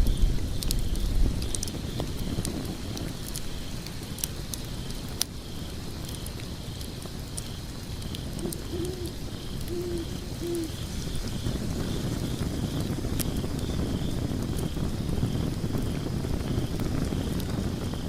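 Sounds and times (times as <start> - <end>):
burning wood crackling and popping: 0.0 - 18.0
low rumble of flames: 0.0 - 18.0
short low hoots: 8.4 - 10.8.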